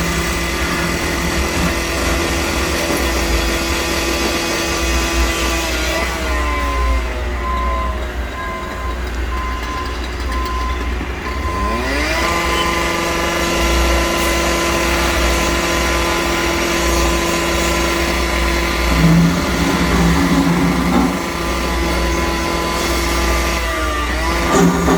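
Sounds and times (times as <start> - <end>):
diesel machinery rumbling: 0.0 - 24.9
backup alarm beeping: 6.5 - 13.0.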